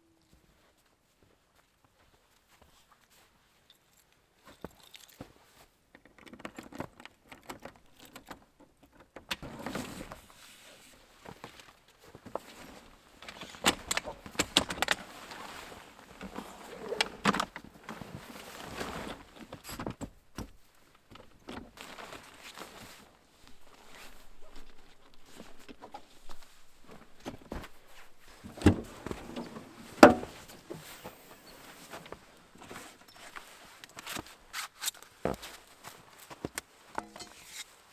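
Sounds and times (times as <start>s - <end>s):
clicks and clinks of gear handled: 3.6s - 8.5s.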